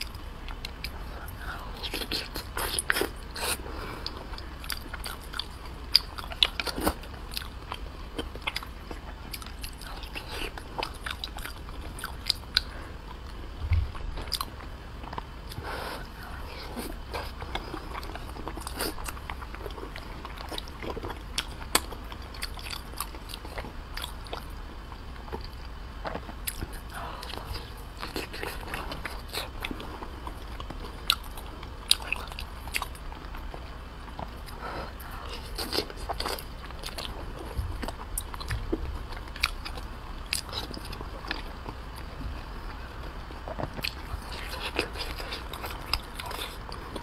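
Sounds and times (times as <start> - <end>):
biting and chewing pork: 0.0 - 47.0
low thump: 13.6 - 14.2.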